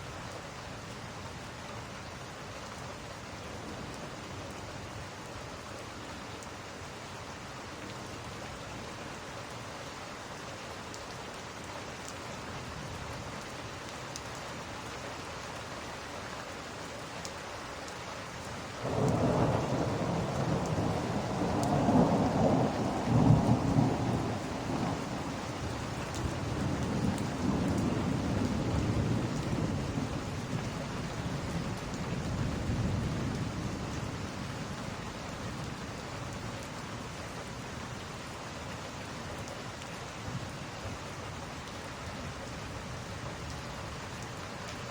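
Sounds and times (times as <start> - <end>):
steady rain: 0.0 - 44.9
thunder rumbling: 18.8 - 30.2.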